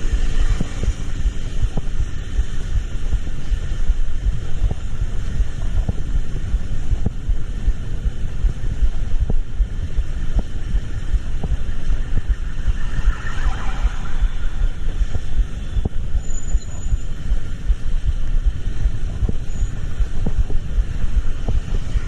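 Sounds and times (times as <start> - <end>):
vehicle rumbling: 0.0 - 22.0
brief wavering sound: 12.4 - 15.0.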